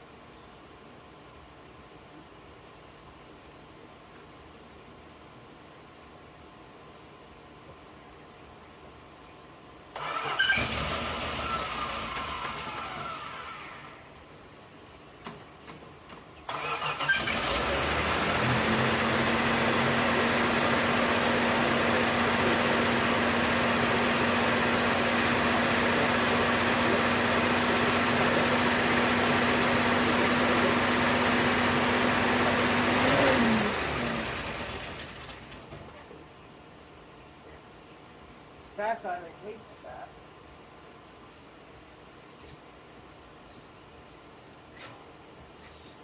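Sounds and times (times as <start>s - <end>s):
car engine running with whine: 10.4s - 14.0s, 16.8s - 35.7s.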